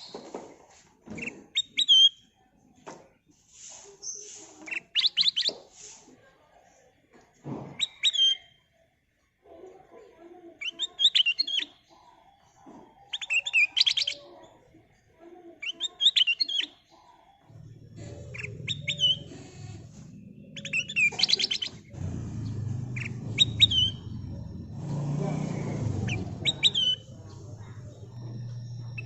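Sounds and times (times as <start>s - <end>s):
bird singing whistled notes and trills: 1.2s - 2.3s, 7.8s - 8.6s, 13.1s - 14.3s, 17.5s - 29.0s
low rumble: 21.7s - 29.0s.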